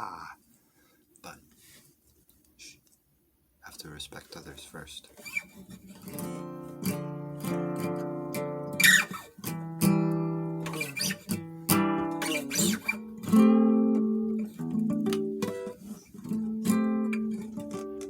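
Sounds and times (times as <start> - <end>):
guitar string squeak: 5.2 - 5.6, 8.8 - 9.3, 10.6 - 13.1
acoustic guitar strumming: 5.2 - 18.0.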